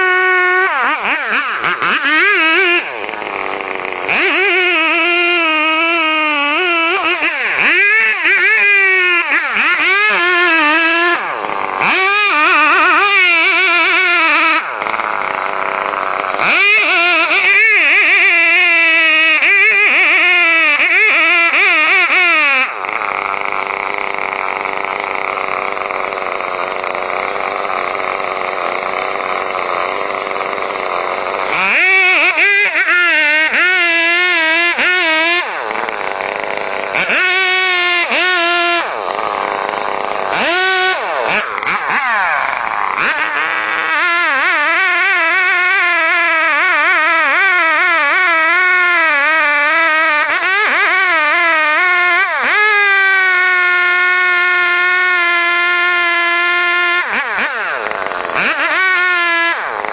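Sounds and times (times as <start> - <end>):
chainsaw cutting: 0.0 - 59.9.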